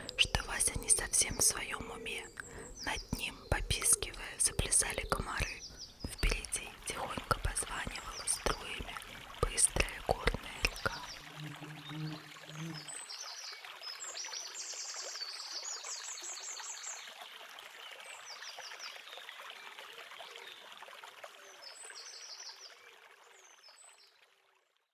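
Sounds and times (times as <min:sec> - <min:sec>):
small birds trilling: 0:00.0 - 0:13.6
stream running: 0:00.0 - 0:24.6.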